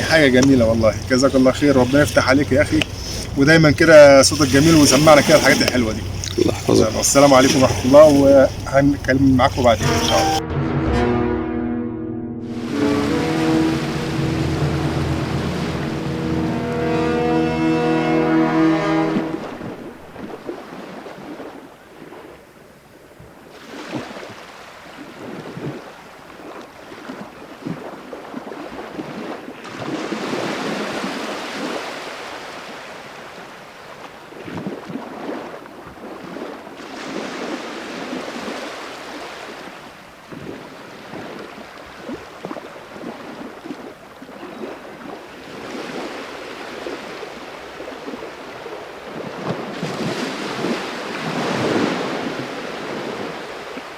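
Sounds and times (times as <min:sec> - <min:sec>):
sea waves washing ashore: 0:00.0 - 0:53.9.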